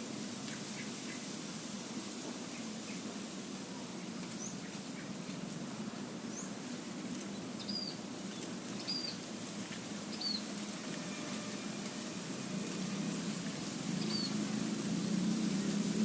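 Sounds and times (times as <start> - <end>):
outdoor hiss and hum: 0.0 - 16.0
small bird chirping: 7.6 - 8.0, 8.8 - 9.2, 10.1 - 10.5.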